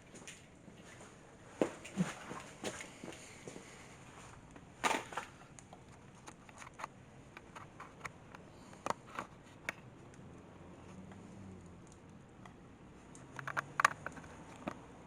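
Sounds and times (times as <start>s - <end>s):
fire crackling in a stove: 0.0s - 10.9s.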